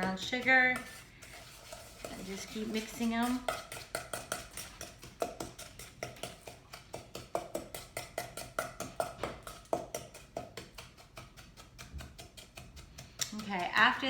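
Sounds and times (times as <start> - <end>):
utensil scraping a small bowl: 0.0 - 8.3.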